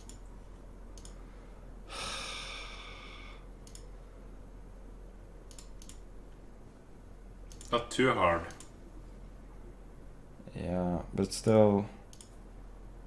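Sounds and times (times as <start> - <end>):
computer mouse clicks: 0.0 - 0.3, 0.9 - 1.2, 3.6 - 3.9, 5.4 - 6.1, 7.5 - 7.7, 11.4 - 12.4
long exhaled sigh: 1.9 - 3.4.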